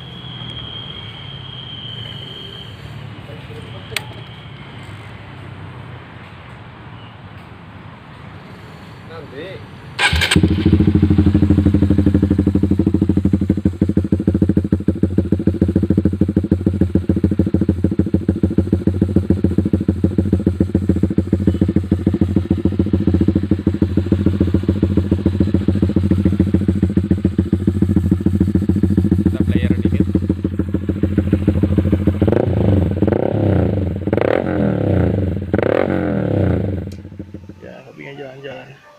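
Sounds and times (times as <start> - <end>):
motorcycle idling: 10.0 - 38.4.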